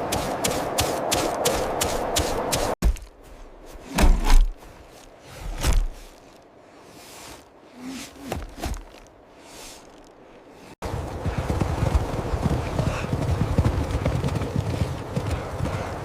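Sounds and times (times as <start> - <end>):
dull thuds: 5.4 - 6.2.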